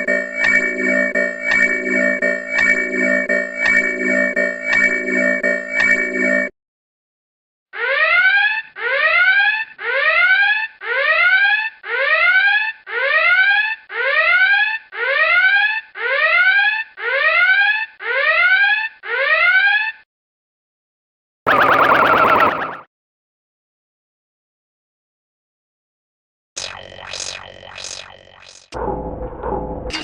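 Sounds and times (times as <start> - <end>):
rising electronic alarm sweep: 0.0 - 6.5, 21.5 - 22.9.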